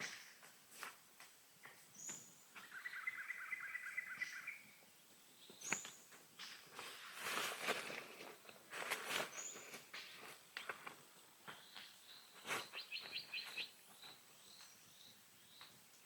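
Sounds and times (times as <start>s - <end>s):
songbird whistling and trilling: 2.0s - 4.8s, 11.6s - 15.7s.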